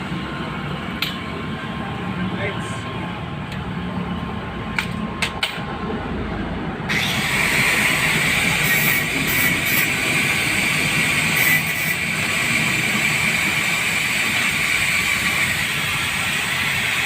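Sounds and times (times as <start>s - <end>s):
machine running with whine: 6.8s - 17.0s.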